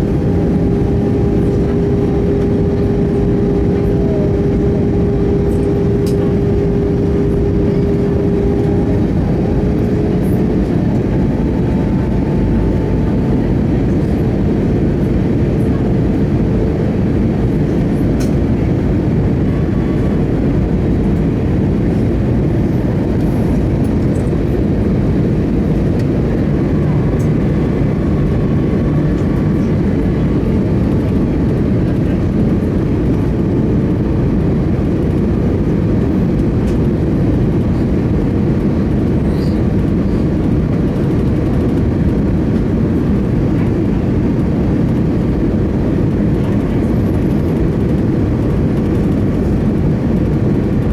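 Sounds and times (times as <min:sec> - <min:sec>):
airplane cabin engine rumble: 0:00.0 - 0:50.9.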